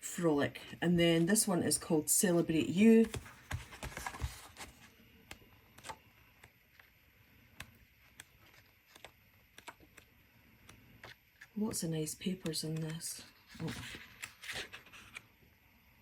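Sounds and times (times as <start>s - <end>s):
paper pages turning: 2.8s - 11.6s, 12.4s - 15.3s.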